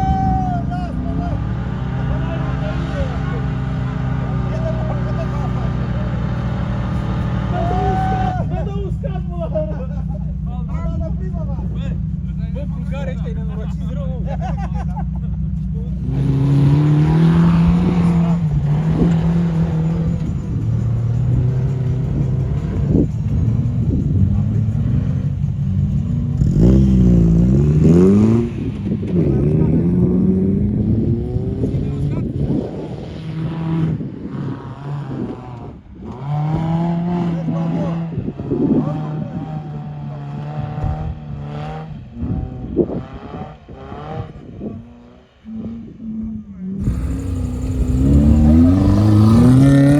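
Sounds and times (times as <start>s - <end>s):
off-road vehicle engine under load: 0.0s - 49.9s.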